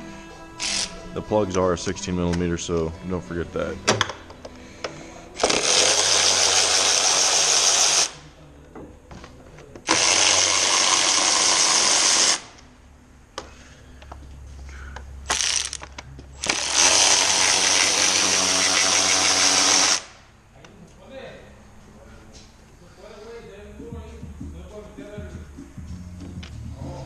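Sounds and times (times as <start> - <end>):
power ratchet whirring: 0.6 - 0.9, 5.4 - 8.2, 9.9 - 12.6, 15.3 - 20.2.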